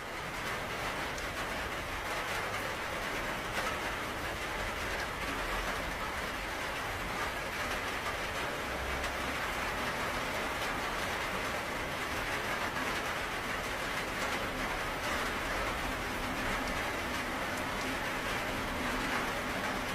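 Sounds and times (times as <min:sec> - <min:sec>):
heavy rain: 0:00.0 - 0:19.9.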